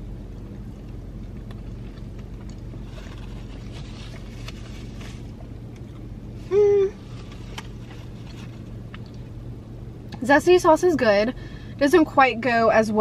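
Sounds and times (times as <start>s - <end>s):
low hum inside car: 0.0s - 13.0s
person chewing crispy food: 0.1s - 6.1s, 7.0s - 9.5s.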